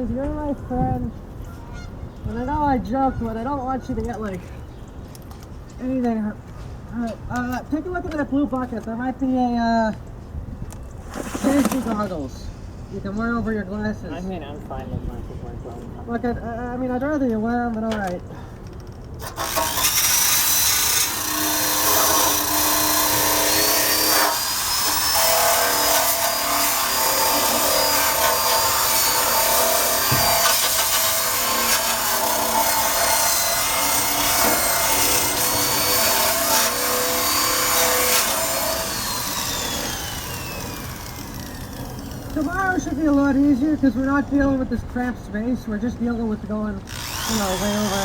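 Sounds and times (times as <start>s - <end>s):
drill motor whine: 19.3s - 42.5s, 46.9s - 48.0s.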